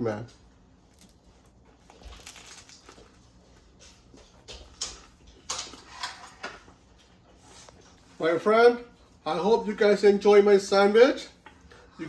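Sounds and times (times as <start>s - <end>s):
person chewing a sandwich: 0.6s - 5.6s
bread crunches: 0.8s - 3.4s.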